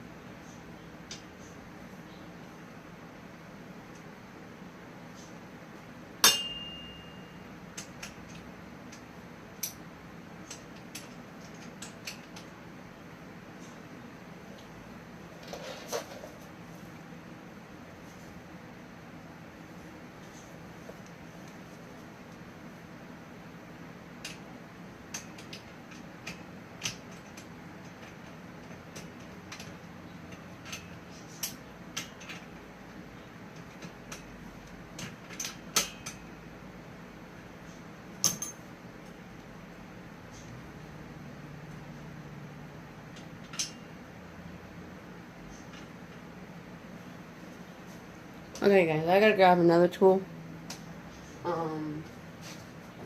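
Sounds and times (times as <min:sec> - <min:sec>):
steady low hum: 0:00.0 - 0:53.0
sharp ringing clank: 0:06.2 - 0:07.4
bike parts and tools clicking: 0:10.4 - 0:12.6, 0:24.2 - 0:36.3, 0:38.2 - 0:38.6, 0:43.1 - 0:43.9.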